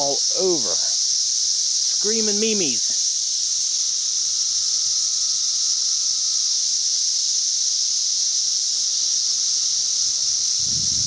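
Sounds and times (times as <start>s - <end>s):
cicadas buzzing: 0.0s - 11.0s.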